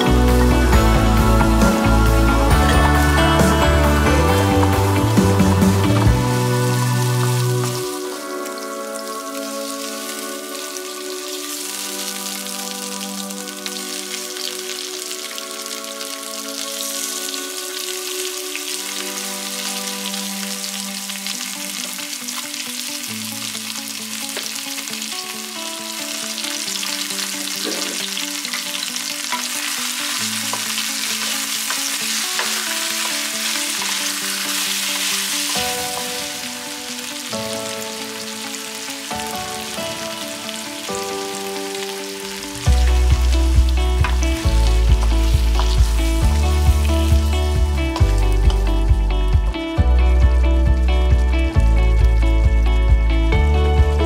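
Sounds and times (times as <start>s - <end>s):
chicken sizzling in hot oil: 0.0s - 48.8s.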